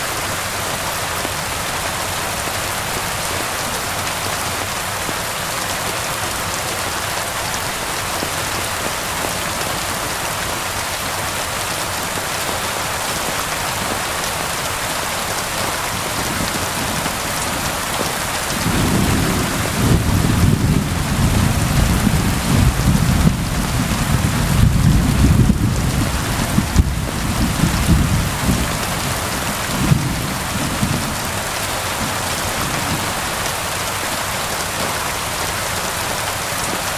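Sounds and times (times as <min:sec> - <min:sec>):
heavy rain falling: 0:00.0 - 0:36.9
thunder rumbling: 0:18.4 - 0:31.3.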